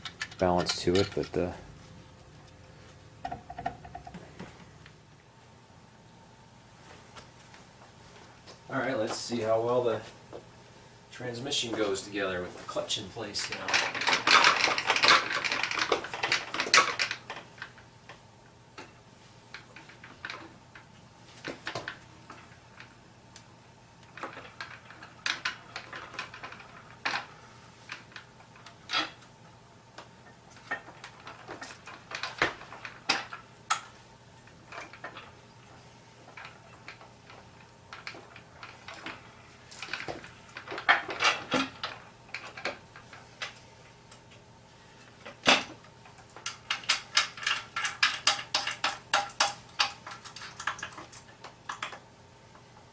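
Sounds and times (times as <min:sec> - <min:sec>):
metal clanks and clicks: 0:00.0 - 0:01.6, 0:45.4 - 0:52.0
metal knocks and clinks: 0:46.4 - 0:51.0.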